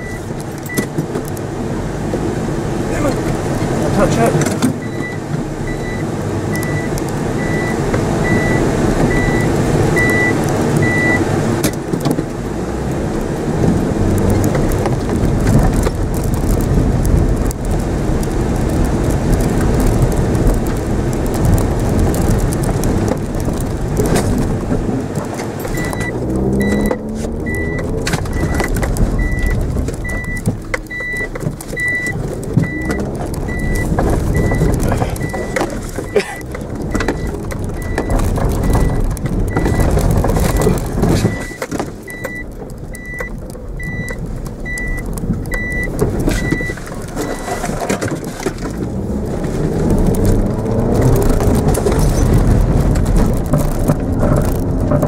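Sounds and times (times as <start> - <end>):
short electronic beeps: 0.0 - 0.9, 6.6 - 11.2, 25.7 - 35.6, 40.5 - 45.0, 45.6 - 47.5
car engine revving: 0.0 - 55.0.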